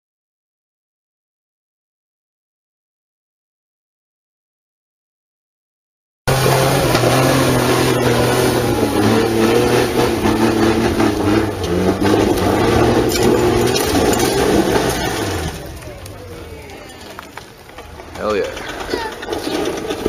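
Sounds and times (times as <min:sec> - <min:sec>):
vehicle engine under hard throttle: 0:06.3 - 0:20.0.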